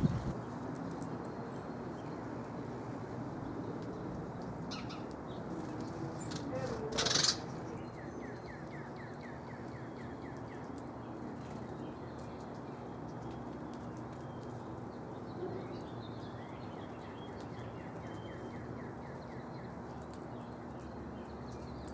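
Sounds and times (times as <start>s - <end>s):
songbird trilling: 0.0s - 0.3s, 6.3s - 8.6s
outdoor background noise: 0.0s - 21.9s.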